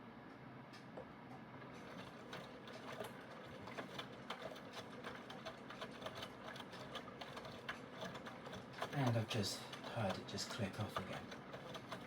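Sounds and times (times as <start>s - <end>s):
washing machine humming: 1.8s - 12.0s
rapid mechanical clicking: 3.8s - 12.0s.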